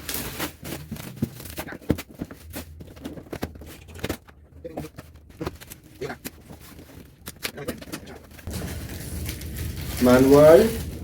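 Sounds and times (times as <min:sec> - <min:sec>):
packaging rustling and knocking: 0:00.0 - 0:07.2.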